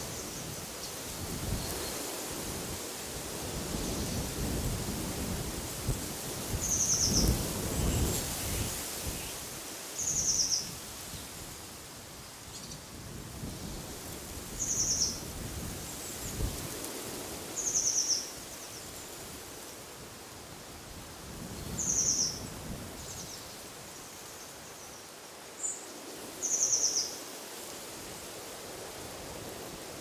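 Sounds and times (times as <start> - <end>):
wind through trees: 0.0 - 30.0.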